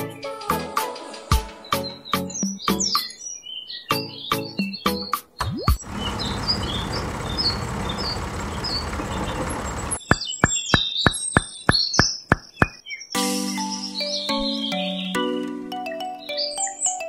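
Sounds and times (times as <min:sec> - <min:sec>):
birds chirping faintly: 0:05.7 - 0:13.2
tractor engine putting: 0:05.8 - 0:11.5.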